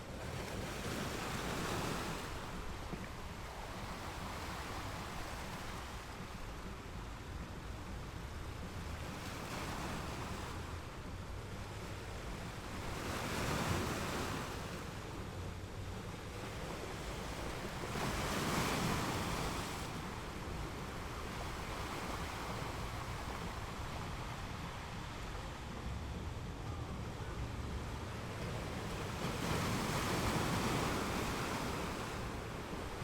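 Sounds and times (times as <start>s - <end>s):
waves breaking: 8.6s - 33.0s
ocean waves washing: 9.3s - 33.0s.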